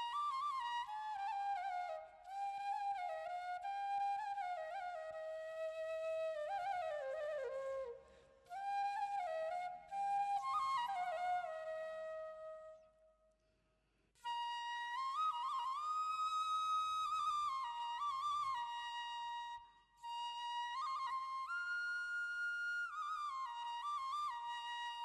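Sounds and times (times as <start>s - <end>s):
solo flute melody: 0.0s - 13.2s, 14.2s - 25.0s.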